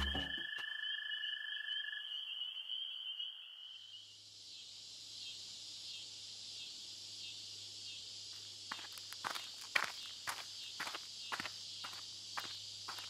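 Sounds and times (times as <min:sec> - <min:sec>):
sharp footsteps: 0:00.0 - 0:00.6, 0:08.7 - 0:13.0
insect chorus: 0:00.0 - 0:13.0.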